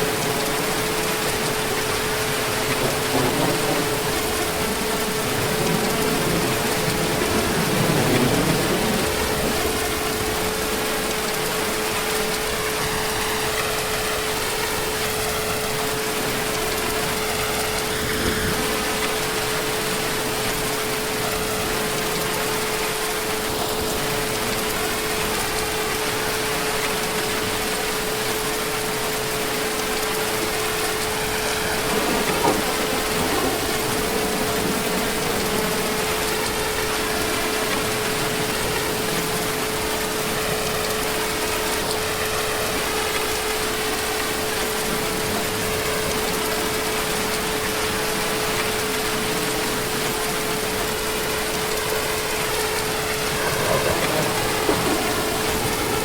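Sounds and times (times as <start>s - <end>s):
constant pitched hum: 0.0s - 56.0s
heavy rain hissing: 0.0s - 56.0s.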